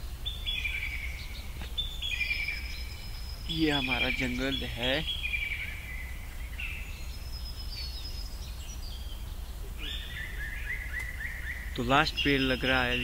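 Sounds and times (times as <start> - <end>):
birds calling: 0.0 - 13.0
low background rumble: 0.0 - 13.0.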